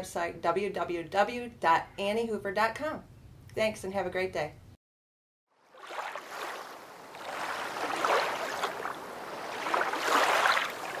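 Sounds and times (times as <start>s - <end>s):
lake water rushing and splashing: 5.7s - 11.0s.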